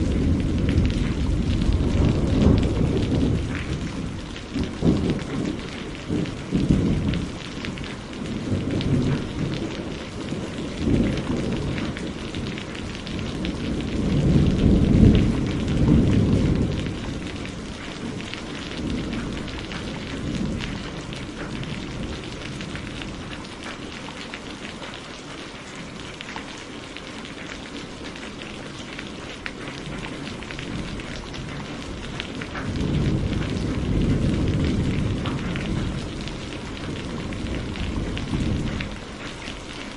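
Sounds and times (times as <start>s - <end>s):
rolling thunder: 0.0s - 23.4s, 29.6s - 39.9s
heavy rain falling: 0.0s - 39.9s.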